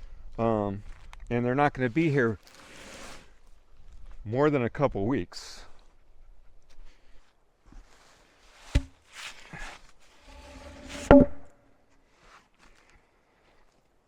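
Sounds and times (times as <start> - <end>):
scraping and rustling: 7.8 - 11.2.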